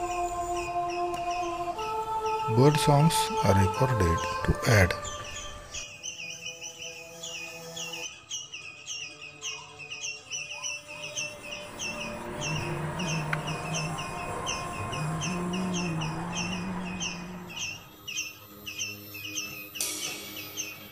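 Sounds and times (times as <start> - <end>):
small bird chirping: 0.0 - 2.8, 4.2 - 20.9
low droning rumble: 11.4 - 18.0.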